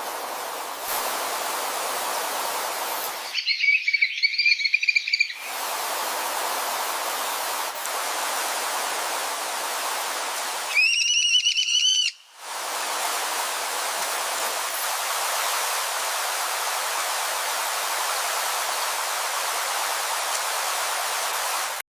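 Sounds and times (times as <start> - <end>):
steady rushing hiss: 0.0 - 21.8
high whistled call: 3.2 - 5.5, 10.7 - 12.2.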